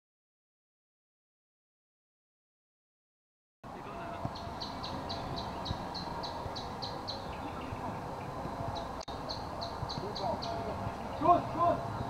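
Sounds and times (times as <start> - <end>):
outdoor background noise: 3.6 - 12.0
bird chirping rapidly: 4.0 - 12.0.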